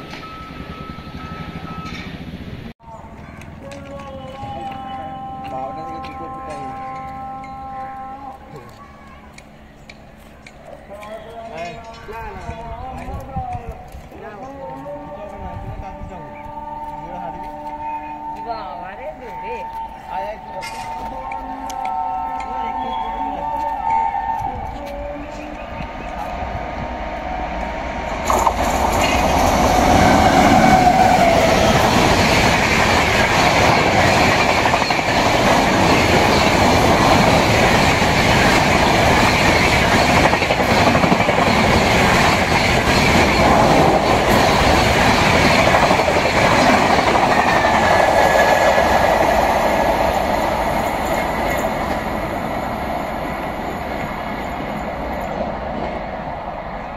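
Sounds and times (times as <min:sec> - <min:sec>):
train wheel clatter: 0:03.0 - 0:18.5, 0:27.5 - 0:56.1.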